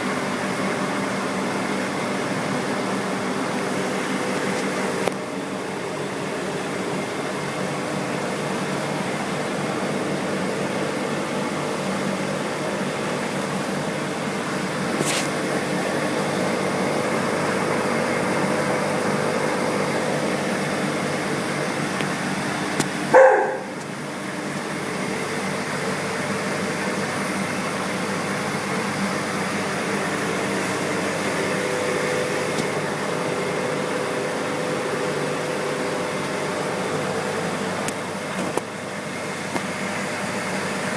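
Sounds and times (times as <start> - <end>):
aquarium pumps humming: 0.0 - 40.9
dog barking: 23.1 - 23.8.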